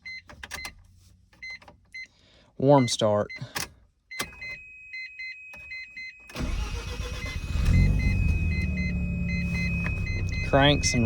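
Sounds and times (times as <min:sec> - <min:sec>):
car engine starting and idling: 0:06.3 - 0:11.0
warning chime beeping: 0:06.6 - 0:11.0.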